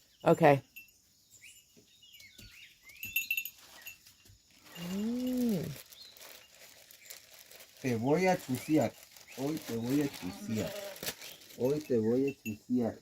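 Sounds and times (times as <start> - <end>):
faint bird chirps: 0.0 - 7.5
light clinks: 0.6 - 5.6
sheep bleating: 10.1 - 11.0.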